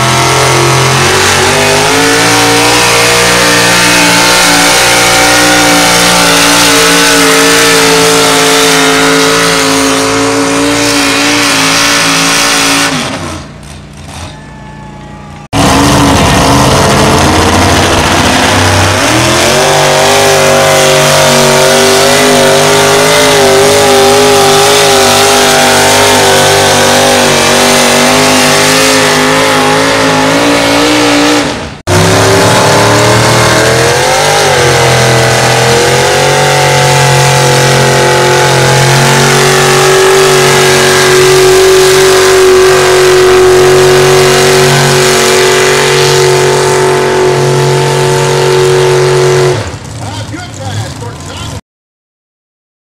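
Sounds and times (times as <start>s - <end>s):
pulling vehicle engine revving loud: 0.0s - 51.6s.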